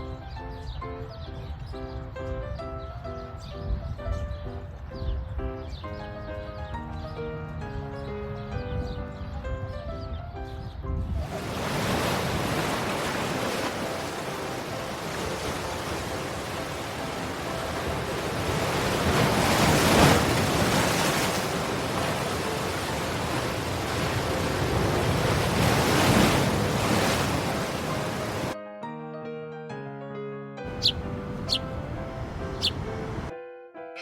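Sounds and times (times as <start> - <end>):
sea waves washing in: 11.2 - 28.6, 30.7 - 33.3.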